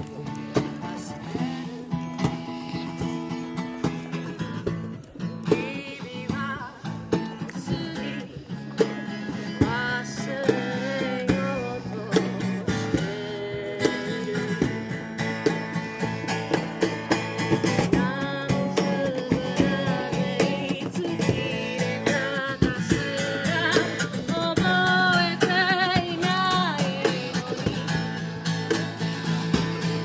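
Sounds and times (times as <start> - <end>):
acoustic guitar: 0.0 - 30.0
person singing: 5.4 - 15.6, 17.2 - 28.3.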